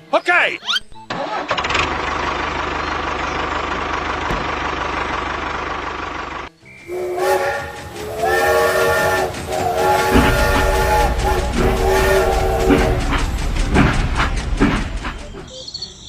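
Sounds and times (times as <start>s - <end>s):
mechanical running rumble: 1.6s - 15.5s
multi-tone horn blasts: 6.8s - 13.8s.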